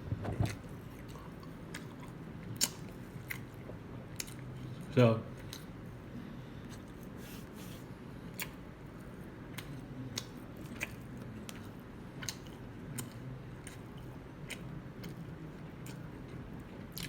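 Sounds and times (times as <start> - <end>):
person chewing food: 9.5 - 17.0.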